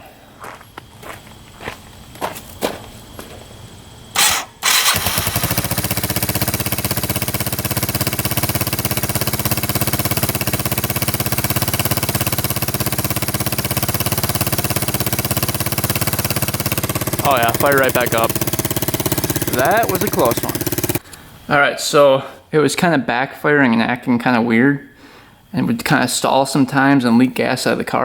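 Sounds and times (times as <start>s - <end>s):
engine running steadily: 4.1s - 21.0s
engine cranking: 4.2s - 21.0s.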